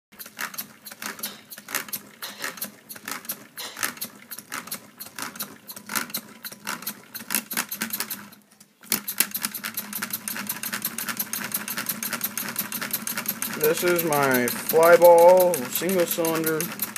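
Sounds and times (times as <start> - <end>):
air engine clicking rhythmically: 11.8 - 16.9.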